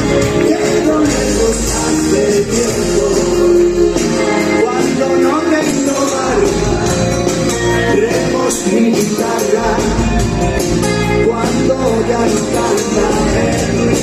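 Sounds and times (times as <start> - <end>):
person singing: 0.0 - 14.0
rock band playing: 0.0 - 14.0.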